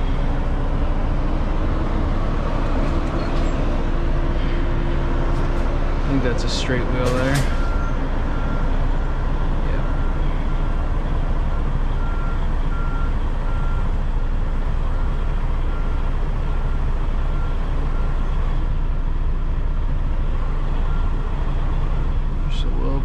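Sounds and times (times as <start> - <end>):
diesel truck engine running: 0.0 - 23.0
backup alarm beeping: 7.4 - 9.2.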